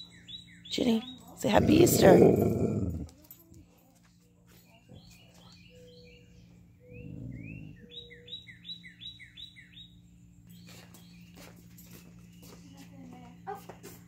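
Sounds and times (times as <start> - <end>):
bird singing: 0.0 - 3.0, 4.6 - 11.5.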